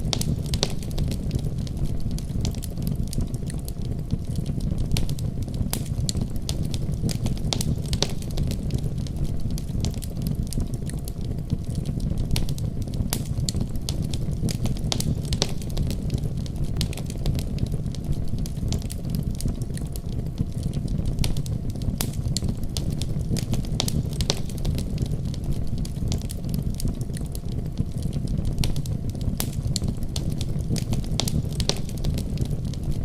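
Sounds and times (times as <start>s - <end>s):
fire crackling: 0.0s - 33.0s.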